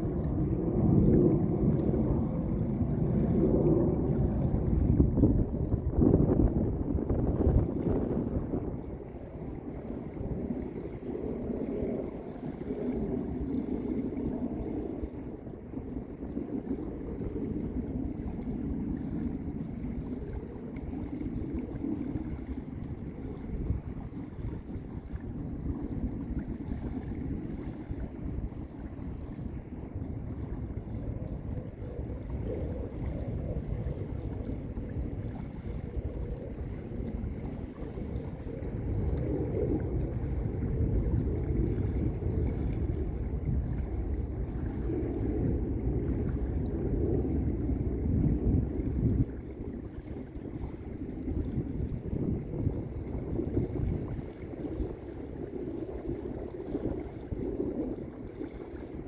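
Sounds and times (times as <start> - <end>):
lake waves washing onto beach: 0.0 - 59.0.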